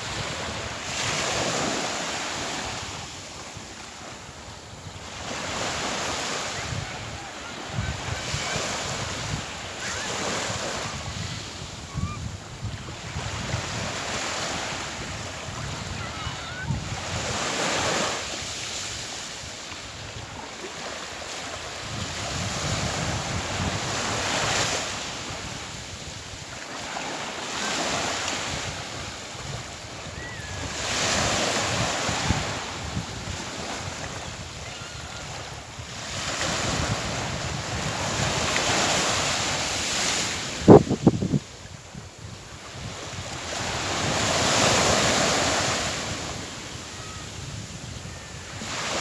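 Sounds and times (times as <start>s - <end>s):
sea waves breaking: 0.0s - 12.2s, 12.9s - 41.4s, 42.8s - 49.0s
wind buffeting microphone: 4.6s - 18.0s, 21.8s - 26.4s, 27.7s - 46.5s.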